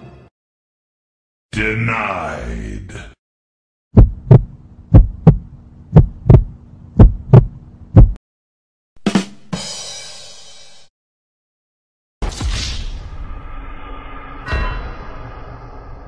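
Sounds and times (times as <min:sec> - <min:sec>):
heartbeat thumps: 0:03.9 - 0:08.2
sharp hit: 0:12.2 - 0:16.0.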